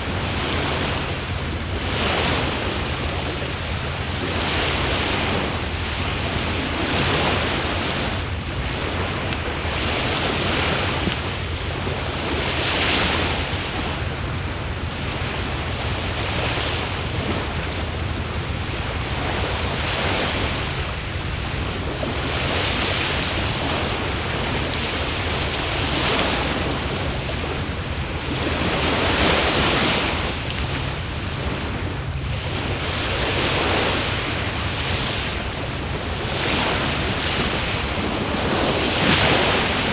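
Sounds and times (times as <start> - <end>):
steady high-pitched whine: 0.0 - 39.9
surf breaking on shore: 0.0 - 39.9.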